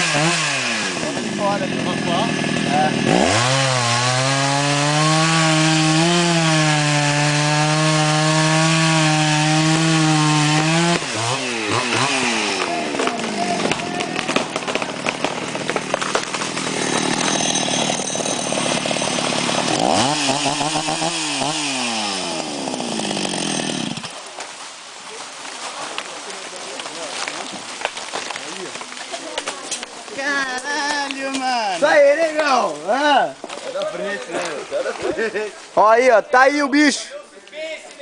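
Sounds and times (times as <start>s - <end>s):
chainsaw cutting wood: 0.0s - 24.2s.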